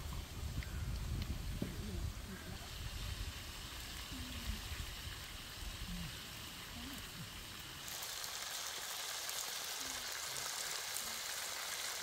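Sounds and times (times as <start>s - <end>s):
low rumble of fire: 0.0s - 8.0s
chicken frying in a wok: 2.2s - 12.0s.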